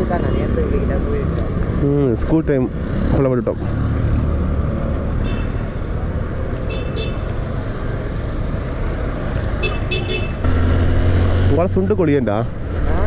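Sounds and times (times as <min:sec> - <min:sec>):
high horn toots: 0:09.6 - 0:10.5.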